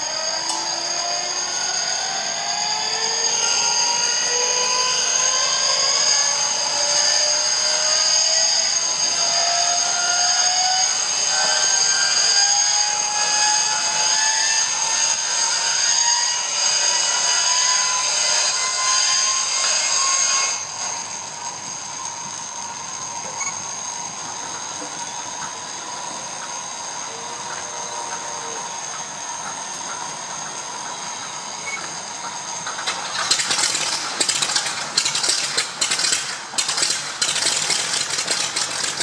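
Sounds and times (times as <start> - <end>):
engine starter whining: 30.4 - 39.0.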